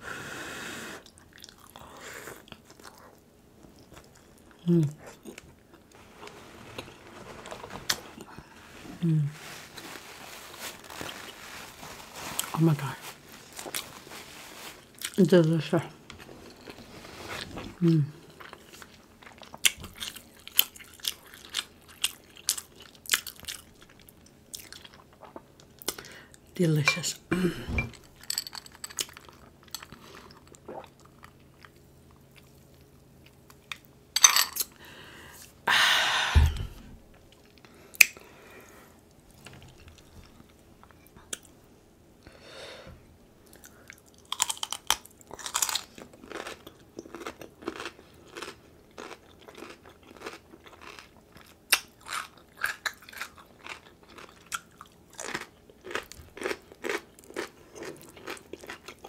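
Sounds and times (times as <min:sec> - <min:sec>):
close chewing and crunching: 0:01.0 - 0:06.0, 0:09.7 - 0:26.5, 0:43.4 - 0:59.0.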